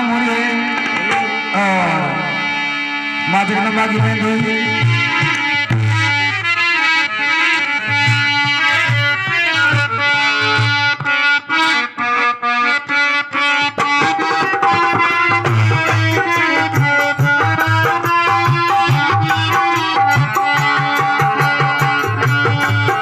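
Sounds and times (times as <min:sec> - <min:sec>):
reedy harmonium melody: 0:00.0 - 0:23.0
hand drum beat: 0:13.8 - 0:23.0.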